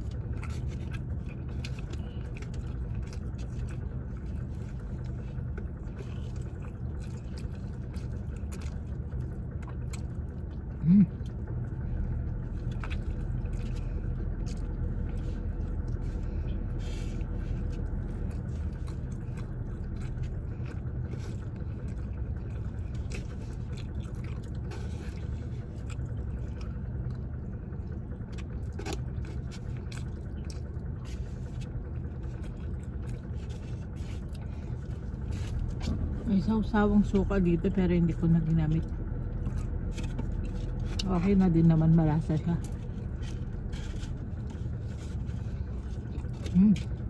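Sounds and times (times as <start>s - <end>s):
eating clicks and scrapes: 0.0s - 36.3s, 38.7s - 47.0s
person chewing food: 0.0s - 36.3s, 38.8s - 41.3s, 42.3s - 47.0s
low background hum: 0.0s - 47.0s.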